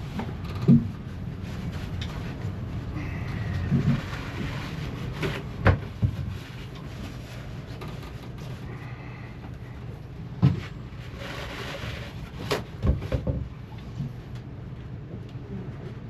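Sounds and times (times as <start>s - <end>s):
steady low hum: 0.0s - 16.0s
knocks and clicks of hand tools: 12.5s - 13.5s.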